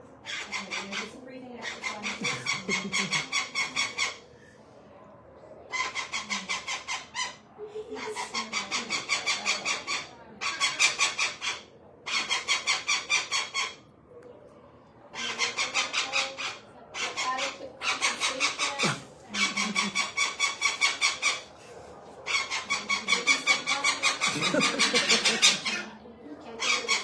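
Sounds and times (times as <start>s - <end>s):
parrot screaming: 15.2s - 21.4s, 22.3s - 25.9s.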